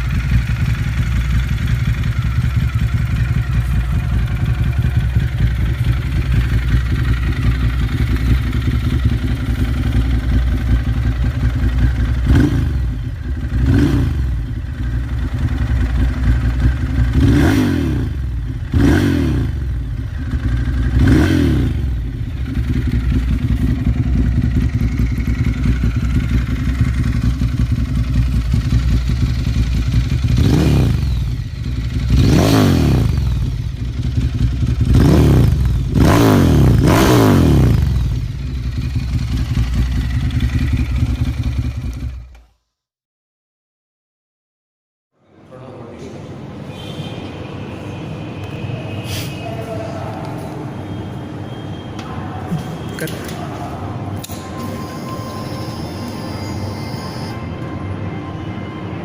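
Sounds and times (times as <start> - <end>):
motorcycle throttle revs: 0.0 - 42.4
motorcycle engine idling: 0.0 - 42.5.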